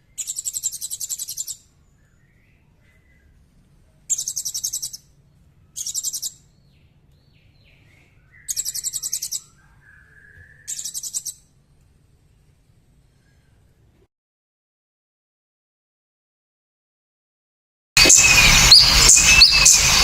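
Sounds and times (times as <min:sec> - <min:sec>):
small bird trilling: 0:00.1 - 0:01.7, 0:04.1 - 0:05.1, 0:05.7 - 0:06.6, 0:08.3 - 0:11.4, 0:18.0 - 0:20.0
bird whistles: 0:00.1 - 0:02.4, 0:04.1 - 0:05.0, 0:05.8 - 0:06.4, 0:08.3 - 0:11.4, 0:18.0 - 0:20.0.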